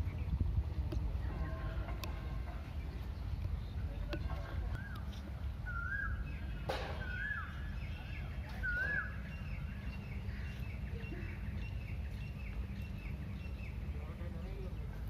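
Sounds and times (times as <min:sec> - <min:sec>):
bird whistling and chirping: 0:04.8 - 0:10.3.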